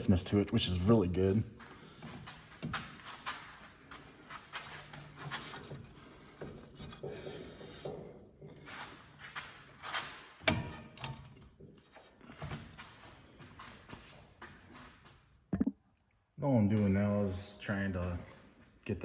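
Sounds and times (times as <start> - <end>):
metal suspension parts scraping clunking: 0.6 - 15.0.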